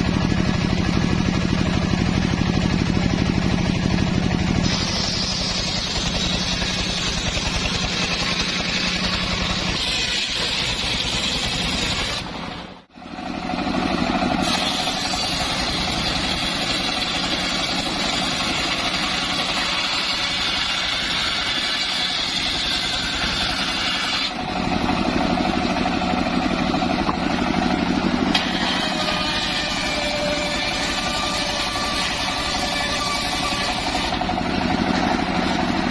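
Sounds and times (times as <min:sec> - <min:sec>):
circular saw engine running: 0:00.0 - 0:35.9
saw blade hiss ripping timber: 0:04.6 - 0:07.8, 0:14.4 - 0:24.4.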